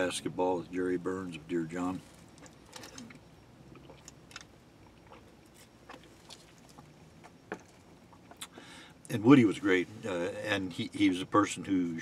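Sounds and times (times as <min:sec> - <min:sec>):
person chewing quietly: 0:02.0 - 0:09.2.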